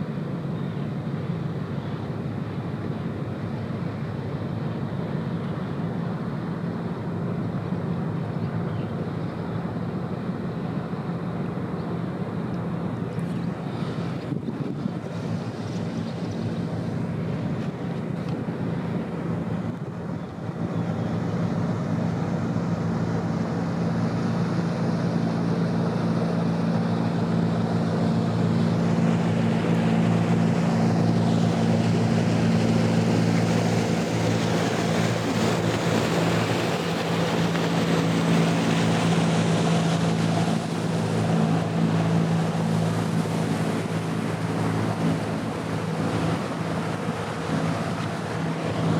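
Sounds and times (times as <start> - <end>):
boat engine humming: 0.0 - 48.9
rushing water wash: 0.0 - 48.9
wind on microphone: 13.1 - 24.9.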